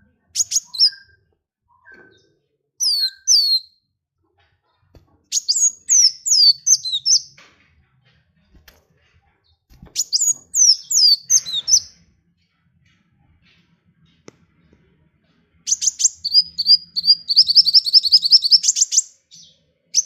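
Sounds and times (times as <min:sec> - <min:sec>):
songbird whistling: 0:00.4 - 0:02.2, 0:02.8 - 0:03.8, 0:05.3 - 0:07.4, 0:10.0 - 0:12.0, 0:15.7 - 0:20.0.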